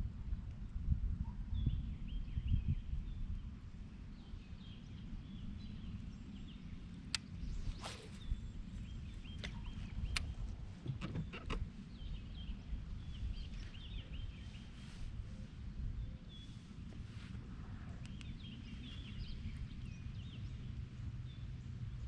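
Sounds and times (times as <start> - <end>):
steady low rumble: 0.0 - 22.0
small birds chirping: 4.0 - 17.2, 17.9 - 22.0.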